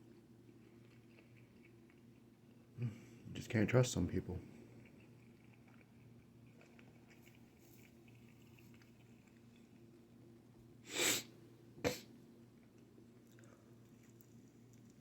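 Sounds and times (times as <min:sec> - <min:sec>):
low room hum: 0:00.0 - 0:15.0
sharp burst of breath: 0:10.8 - 0:11.3
person sneezing: 0:10.9 - 0:12.1.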